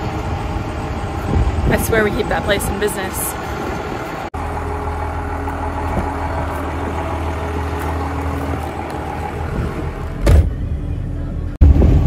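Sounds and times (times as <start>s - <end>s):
car engine idling: 0.0s - 11.6s
car door shutting: 10.1s - 10.6s.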